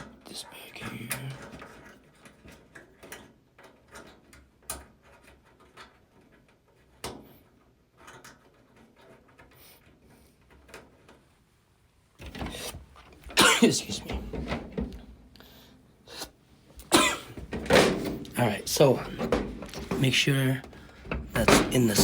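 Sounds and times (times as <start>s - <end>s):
dryer parts clicking and knocking: 0.8s - 9.5s, 12.2s - 15.7s, 16.7s - 22.0s.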